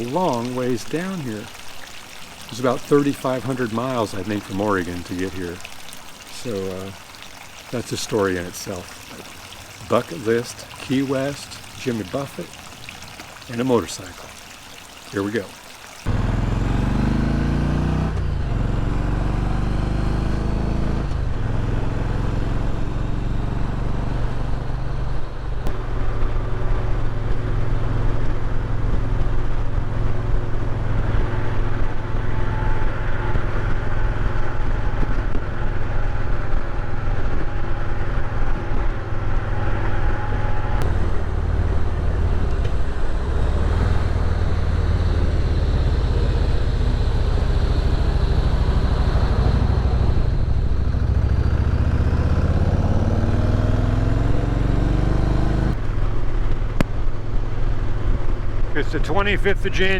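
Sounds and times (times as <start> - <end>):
wind and road noise: 0.0 - 59.9
motorcycle engine accelerating: 16.1 - 36.8, 39.6 - 56.1.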